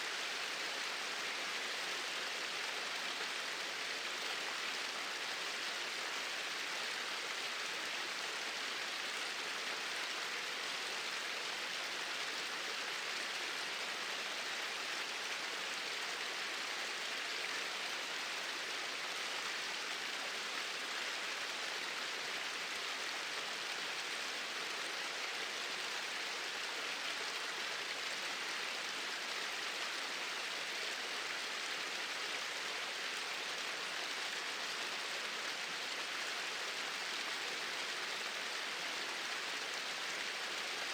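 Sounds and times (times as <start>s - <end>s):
small waterfall pouring: 0.1s - 40.9s.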